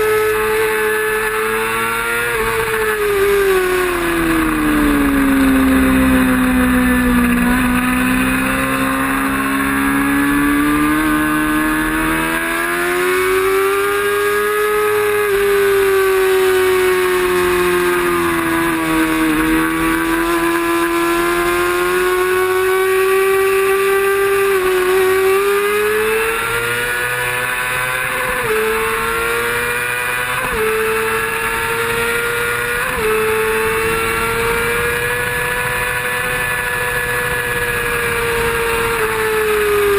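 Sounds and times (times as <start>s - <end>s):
racing motorcycle engine revving: 0.0s - 39.9s.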